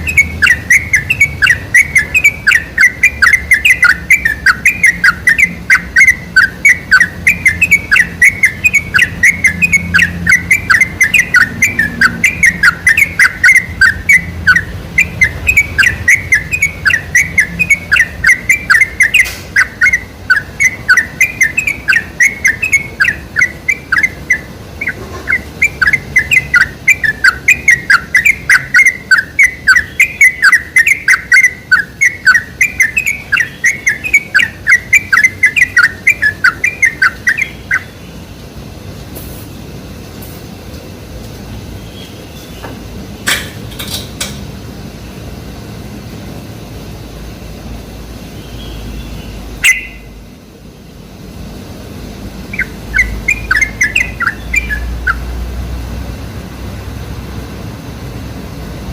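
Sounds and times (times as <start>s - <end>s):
bird chirping rapidly: 0.0s - 38.3s, 48.3s - 50.2s, 52.4s - 55.5s.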